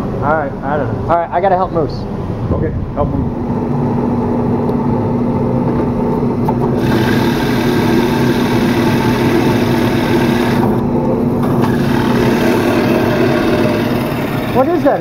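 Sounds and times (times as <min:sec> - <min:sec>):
woodworking machine running: 0:06.4 - 0:15.0.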